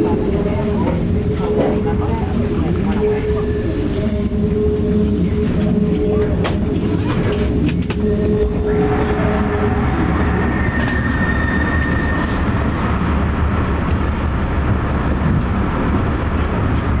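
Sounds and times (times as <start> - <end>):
train wheels rumbling: 0.0 - 17.0
faint high squeal: 8.0 - 12.6.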